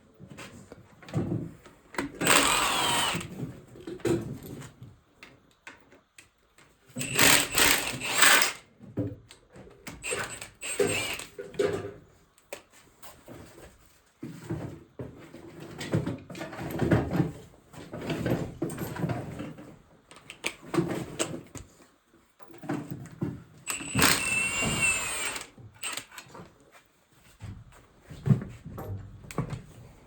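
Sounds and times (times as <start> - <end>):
tools and metal parts clattering: 15.5 - 19.7.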